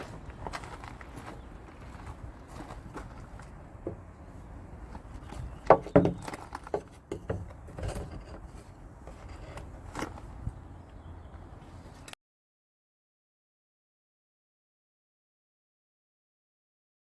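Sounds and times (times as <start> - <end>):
knocks and clatters: 5.2 - 8.5.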